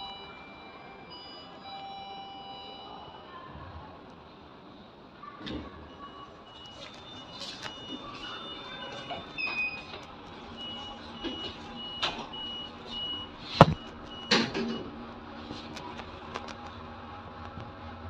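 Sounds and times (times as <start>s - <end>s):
sharp knocks: 13.6s - 13.9s.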